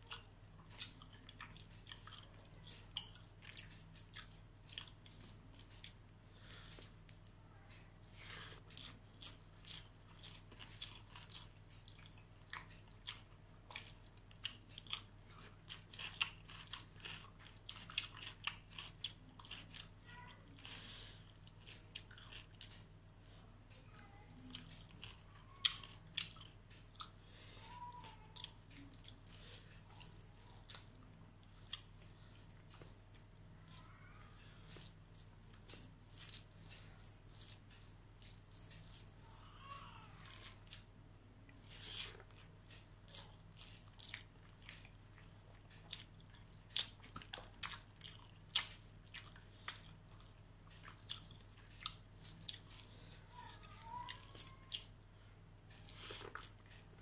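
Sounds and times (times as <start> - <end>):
low electrical hum: 0.0 - 57.0
person chewing food: 0.0 - 57.0
fingers mixing rice on steel plate: 34.5 - 39.3.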